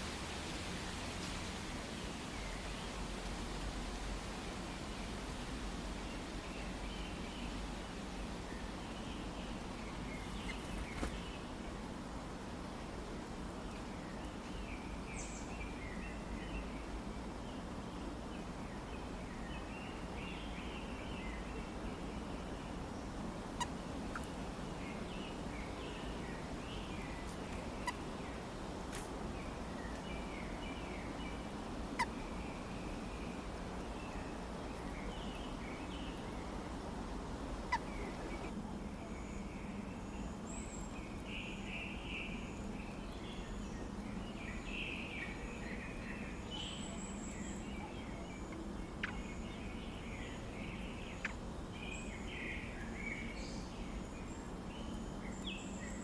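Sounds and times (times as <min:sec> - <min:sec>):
outdoor hiss: 0:00.0 - 0:56.0
birds chirping: 0:08.2 - 0:11.8.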